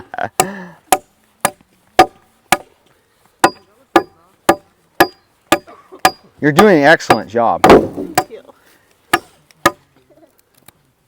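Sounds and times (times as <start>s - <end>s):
machete chopping branch: 7.1s - 8.4s.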